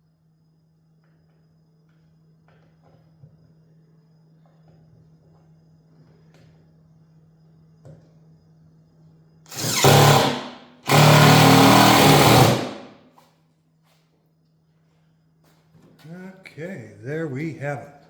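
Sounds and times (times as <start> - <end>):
power tool running: 9.5 - 13.0.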